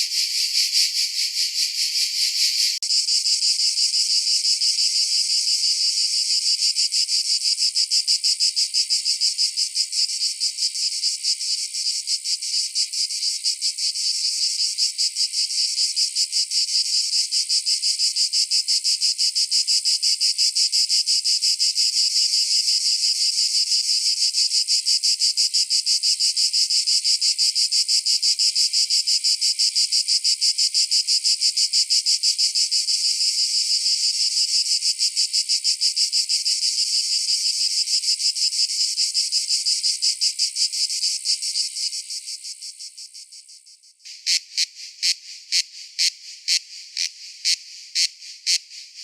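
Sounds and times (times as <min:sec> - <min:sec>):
cicada buzzing: 0:44.1 - 0:49.0.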